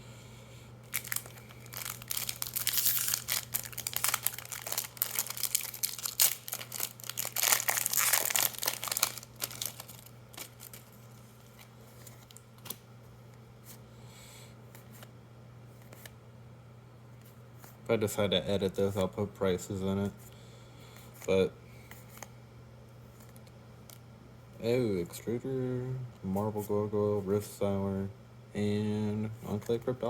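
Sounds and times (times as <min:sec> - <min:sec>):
cards clicking and rustling: 0:00.9 - 0:12.8
foil wrapper crinkling and tearing: 0:00.9 - 0:12.8.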